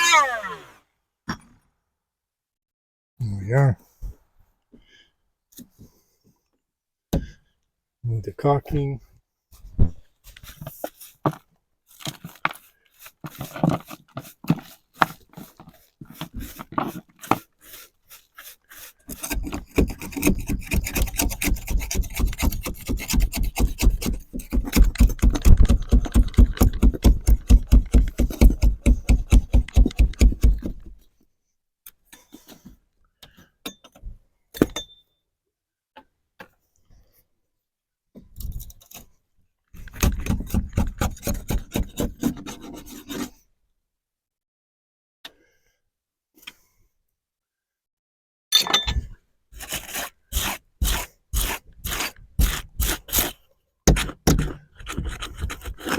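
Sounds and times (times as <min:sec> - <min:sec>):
scraping caulking off wood: 0:11.9 - 0:30.9, 0:39.8 - 0:43.3, 0:49.6 - 0:55.9.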